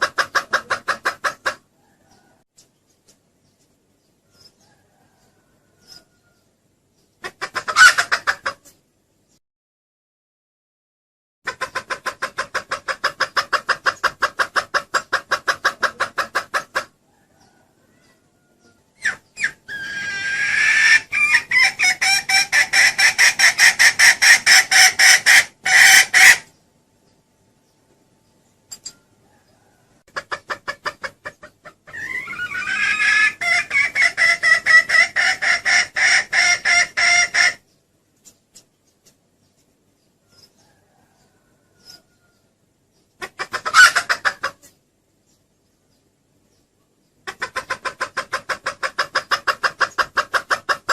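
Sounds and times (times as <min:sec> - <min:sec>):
hen clucking rapidly: 0:00.0 - 0:06.2, 0:07.1 - 0:08.9, 0:11.5 - 0:26.6, 0:29.3 - 0:42.2, 0:43.0 - 0:44.8, 0:47.1 - 0:50.9.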